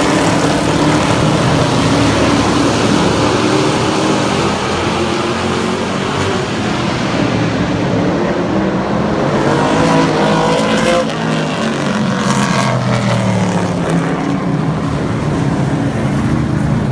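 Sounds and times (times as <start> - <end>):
truck passing by: 0.0 - 8.4
racing truck engines: 0.0 - 16.9.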